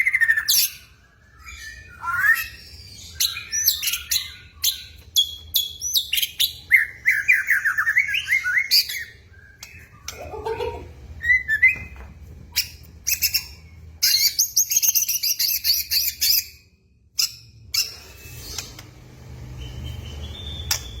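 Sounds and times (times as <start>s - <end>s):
bird singing: 0.0s - 12.0s, 19.5s - 21.0s.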